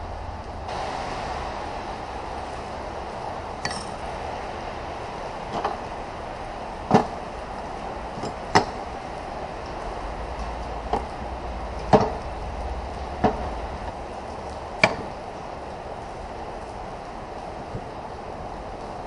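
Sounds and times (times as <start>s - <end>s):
steady background noise: 0.0s - 19.0s
metal parts clinking on workbench: 3.6s - 4.0s.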